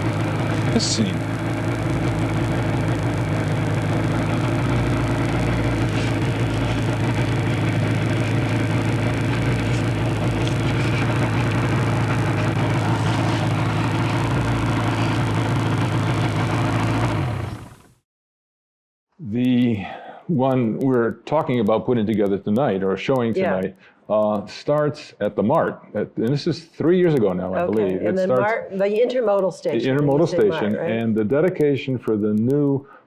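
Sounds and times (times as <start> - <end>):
motorcycle engine running: 0.0 - 18.0, 29.7 - 31.2.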